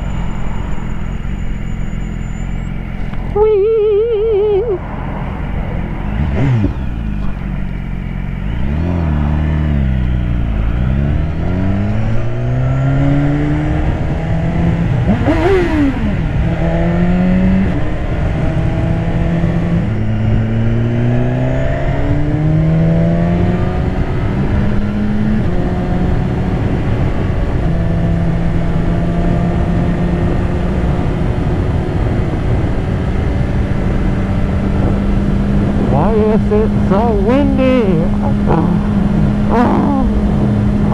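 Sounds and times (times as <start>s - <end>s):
motorcycle engine shifting gears: 0.9s - 40.9s
wind rushing over microphone: 11.2s - 37.0s, 37.7s - 40.9s.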